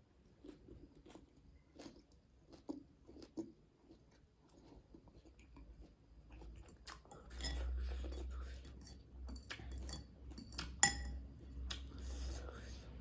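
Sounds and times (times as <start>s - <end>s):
chewing food: 0.2s - 10.8s
sharp clink: 8.7s - 11.2s.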